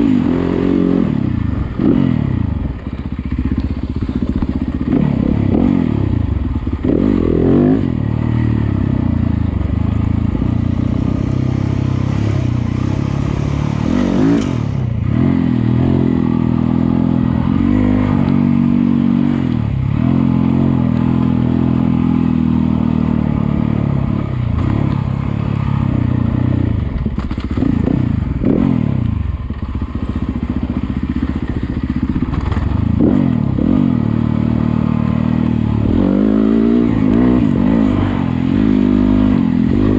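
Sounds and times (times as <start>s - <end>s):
dirt bike engine revving: 0.0s - 39.9s
bike knocks and rattles: 31.7s - 32.9s.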